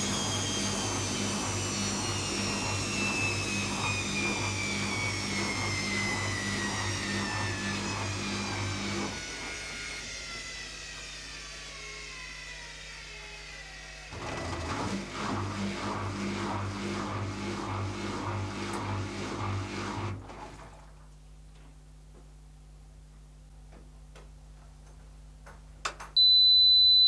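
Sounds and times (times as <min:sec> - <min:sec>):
drain pump humming: 0:00.0 - 0:10.0, 0:14.2 - 0:20.9
washing machine motor whine: 0:00.0 - 0:21.1, 0:26.2 - 0:27.0.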